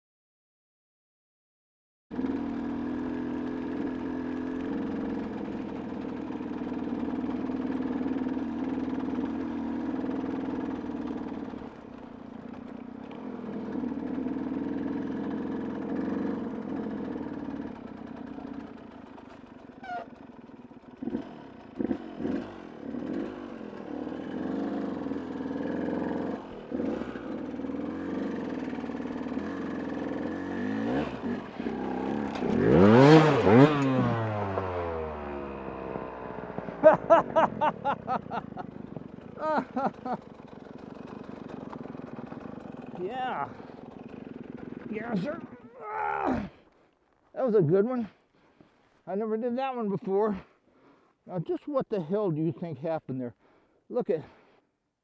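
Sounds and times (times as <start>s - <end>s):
motorcycle engine revving: 2.1s - 46.7s
engine clatter: 2.2s - 45.6s.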